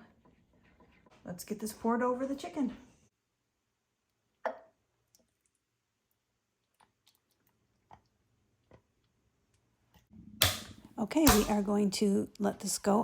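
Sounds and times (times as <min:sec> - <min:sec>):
kitchenware clicks and taps: 0:10.4 - 0:11.7.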